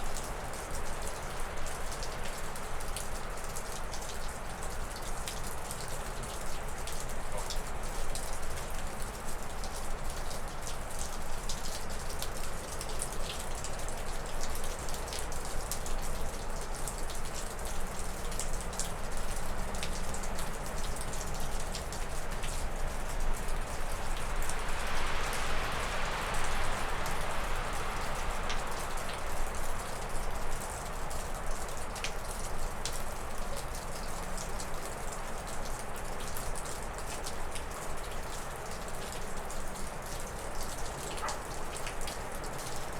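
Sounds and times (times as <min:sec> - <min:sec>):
water dripping off a roof: 0:00.0 - 0:42.9
wind gusting through trees: 0:22.6 - 0:31.6.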